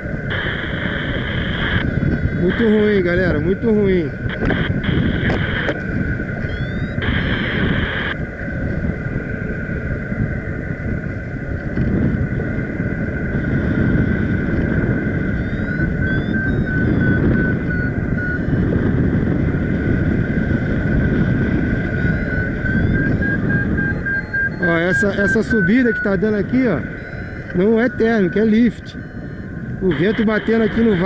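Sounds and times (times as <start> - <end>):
wind buffeting microphone: 0.0 - 31.0
variometer beeping: 4.2 - 8.2, 15.1 - 19.1, 20.1 - 31.0.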